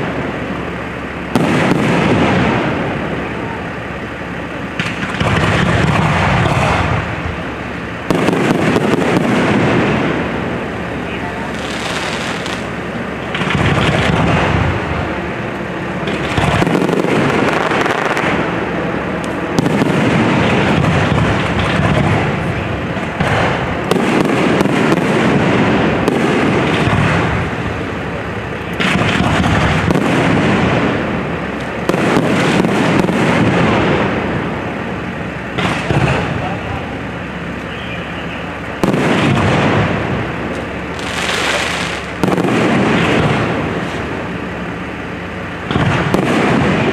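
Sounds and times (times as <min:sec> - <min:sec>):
fireworks crackling and popping: 0:00.0 - 0:46.9
fireworks exploding: 0:00.0 - 0:46.9.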